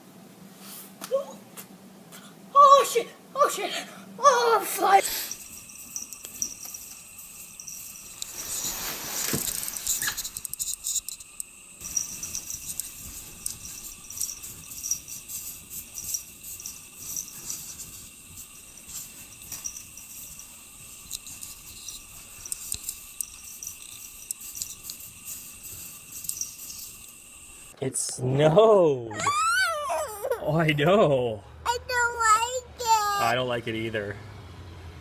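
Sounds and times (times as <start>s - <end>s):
insects chirring: 4.6s - 27.8s
ticks and crackles: 5.3s - 27.7s.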